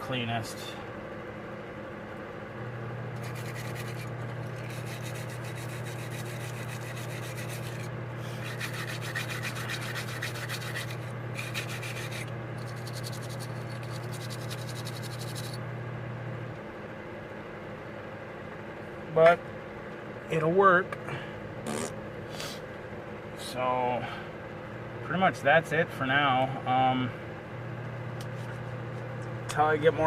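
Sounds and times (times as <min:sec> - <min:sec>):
low hum: 0:00.0 - 0:20.2
scrubbing by hand: 0:03.2 - 0:15.6.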